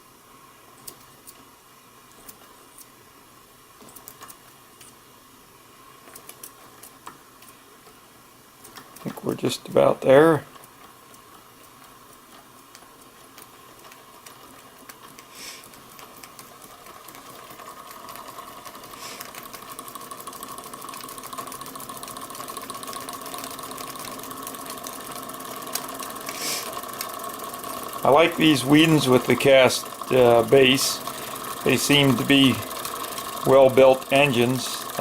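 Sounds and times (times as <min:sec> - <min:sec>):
toy steam engine clicking: 0:08.6 - 0:35.0
steady whine: 0:08.9 - 0:35.0
steam hisses: 0:15.3 - 0:15.7, 0:26.3 - 0:26.8.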